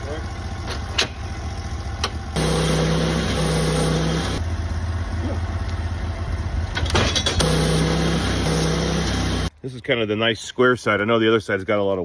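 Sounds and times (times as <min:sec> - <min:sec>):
sawmill engine running: 0:00.0 - 0:09.5.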